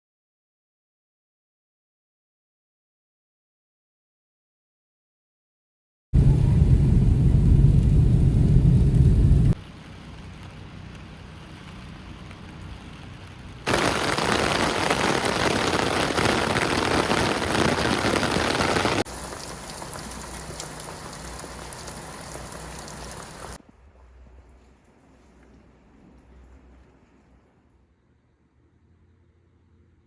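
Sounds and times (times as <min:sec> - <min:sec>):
rain falling: 0:06.2 - 0:27.6.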